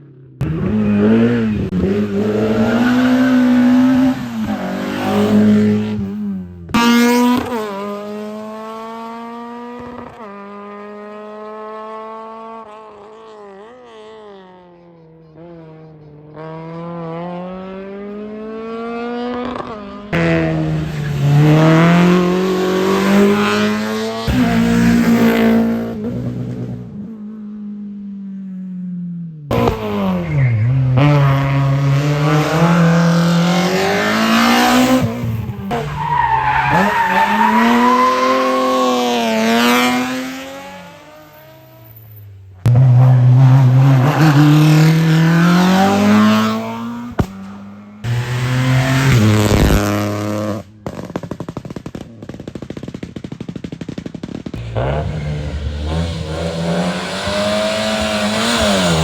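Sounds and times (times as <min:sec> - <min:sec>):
race car engines revving: 0:00.0 - 0:27.6, 0:29.5 - 0:52.7, 0:53.3 - 0:59.0
tyre squeal: 0:35.7 - 0:38.7.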